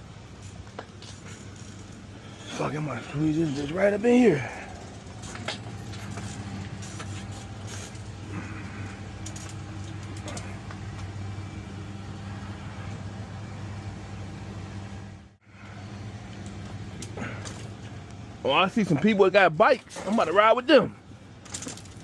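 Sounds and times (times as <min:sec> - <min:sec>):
low motor hum: 0:00.0 - 0:18.5.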